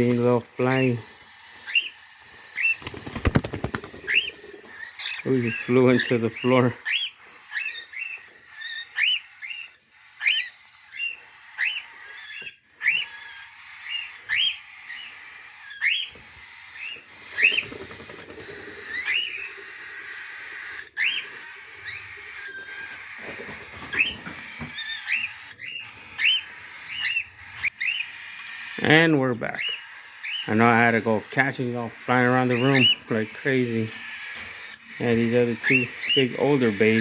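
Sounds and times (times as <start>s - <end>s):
birds chirping: 0.0s - 37.0s
cockatiel whistled call: 6.8s - 17.8s.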